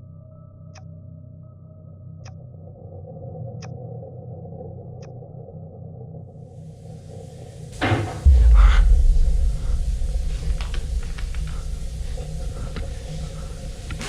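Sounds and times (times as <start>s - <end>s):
door banging: 7.8s - 14.0s
loud deep rumble: 7.8s - 14.0s.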